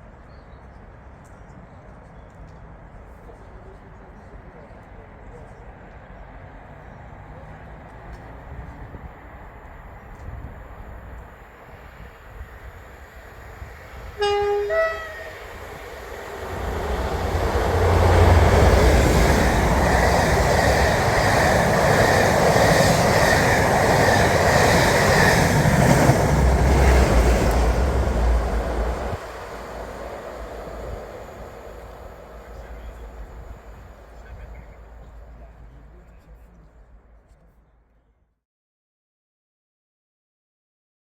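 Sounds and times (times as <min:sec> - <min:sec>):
rush of train wheels and coaches: 0:00.0 - 0:37.5
locomotive engine rumble: 0:07.9 - 0:37.6
two-tone locomotive horn: 0:14.0 - 0:15.7.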